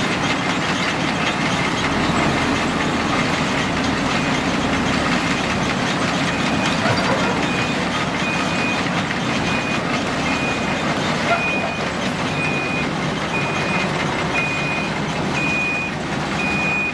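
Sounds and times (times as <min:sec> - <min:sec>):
heavy diesel machinery running: 0:00.0 - 0:16.9
reversing alarm beeping: 0:04.0 - 0:16.9.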